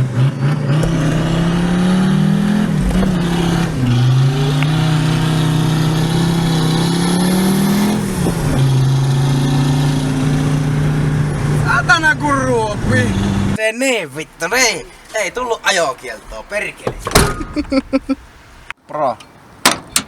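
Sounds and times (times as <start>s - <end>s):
diesel car engine accelerating: 0.0s - 13.6s.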